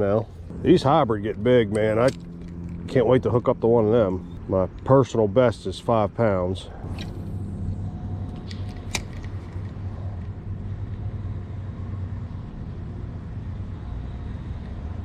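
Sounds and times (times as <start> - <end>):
low outdoor rumble: 0.0 - 15.0
sharp click: 6.9 - 10.3.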